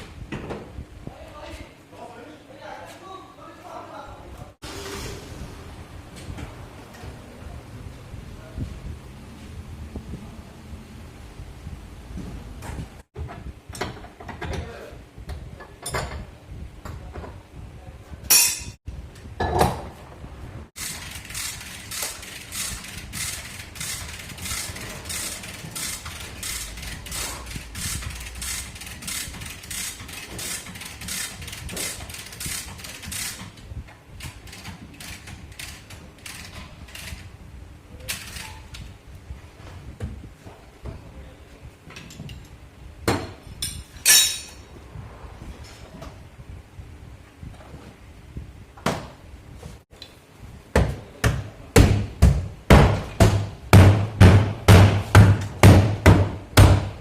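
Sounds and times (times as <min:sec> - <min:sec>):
loud tool hits: 0:18.3 - 0:18.8.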